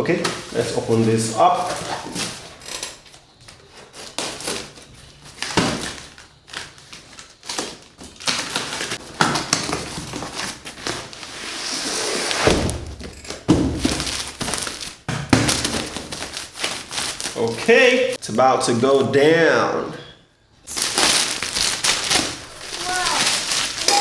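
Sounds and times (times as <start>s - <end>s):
scraping and rustling: 6.9s - 15.0s, 20.7s - 24.0s
hiss: 11.2s - 12.8s
cardboard package knocks and thuds: 12.2s - 17.3s.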